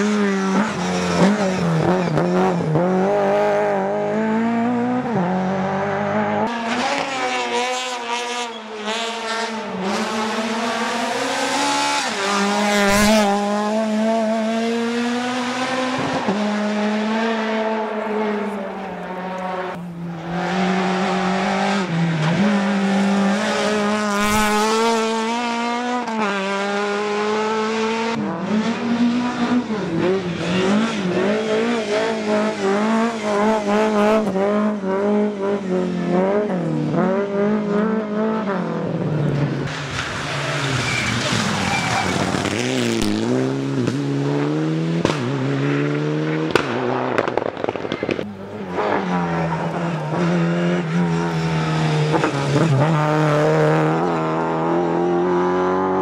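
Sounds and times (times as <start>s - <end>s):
rally car engines revving: 0.0s - 56.0s
tyre squeal: 39.9s - 42.6s.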